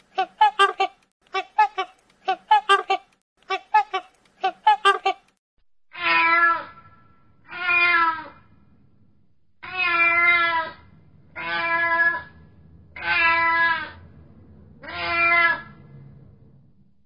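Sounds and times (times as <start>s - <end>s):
cat meowing: 6.0s - 6.8s, 7.5s - 8.4s, 9.6s - 10.8s, 11.4s - 12.3s, 13.0s - 14.0s, 14.8s - 15.8s.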